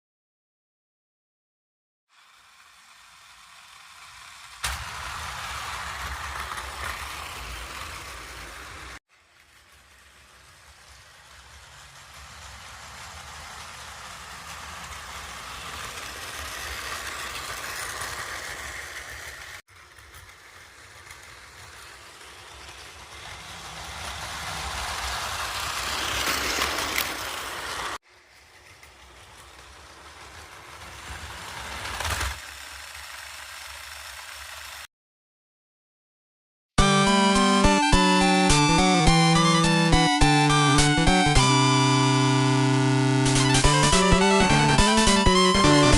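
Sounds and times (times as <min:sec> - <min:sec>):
toy train motor whirring: 0:02.1 - 0:34.9
toy train wheels rattling: 0:02.2 - 0:34.9.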